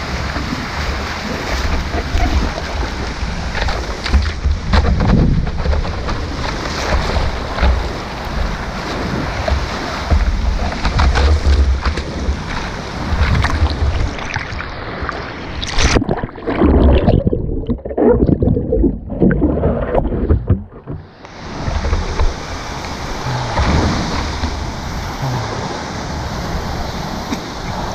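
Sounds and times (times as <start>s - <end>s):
wind buffeting microphone: 0.0s - 14.9s
ocean surf washing on beach: 0.0s - 17.1s, 19.6s - 27.9s.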